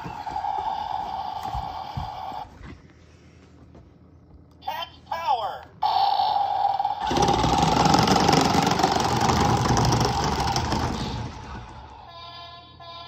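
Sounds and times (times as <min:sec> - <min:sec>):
toy speaker steady tone: 0:05.8 - 0:07.1
recorded truck engine sound effect: 0:05.8 - 0:12.0.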